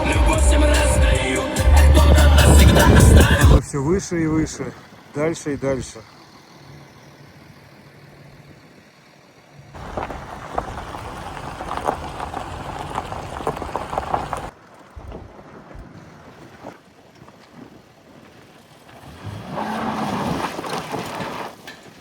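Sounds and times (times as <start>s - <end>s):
tyres crunching on gravel: 0.0s - 3.6s, 9.8s - 22.0s
vehicle engine hum: 0.0s - 14.6s.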